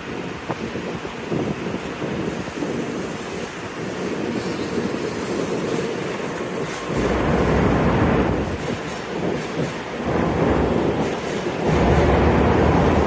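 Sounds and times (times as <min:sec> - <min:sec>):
train wheels rumbling: 0:00.0 - 0:13.0
wind buffeting microphone: 0:00.0 - 0:13.0.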